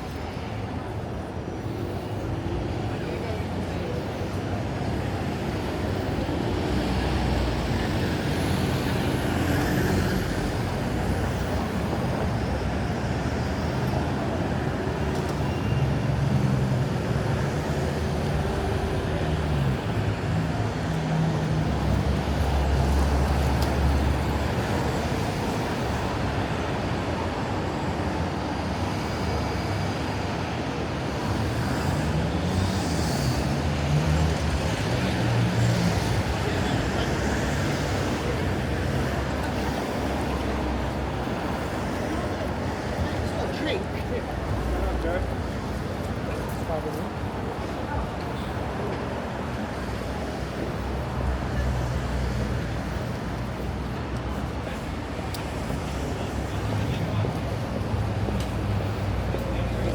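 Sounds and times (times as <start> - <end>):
roar of passing vehicles: 30.9 - 59.9.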